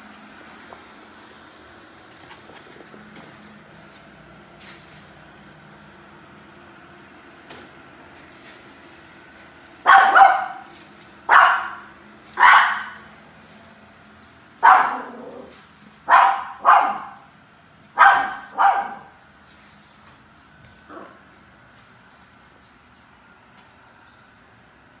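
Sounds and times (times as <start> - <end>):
puppy barking: 9.8 - 13.1, 14.6 - 17.3, 18.0 - 19.2.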